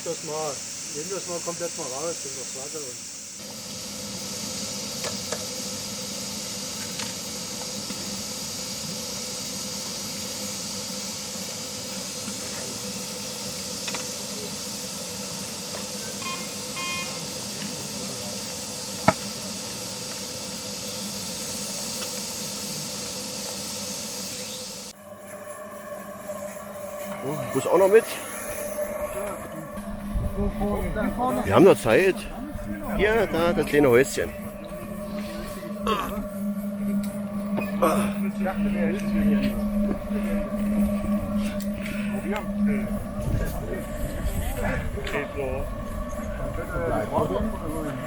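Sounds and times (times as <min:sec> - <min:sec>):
steady hiss: 0:00.0 - 0:48.0
short beeps: 0:16.2 - 0:17.2
low steady hum: 0:24.9 - 0:48.0.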